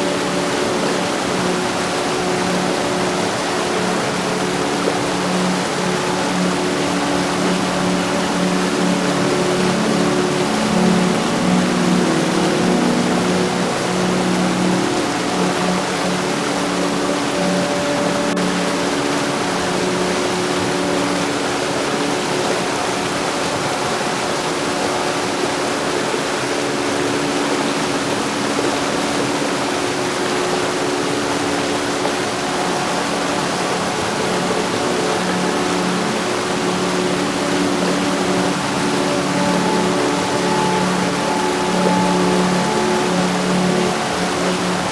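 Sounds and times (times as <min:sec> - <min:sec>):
heavy rain falling: 0:32.0 - 0:44.9.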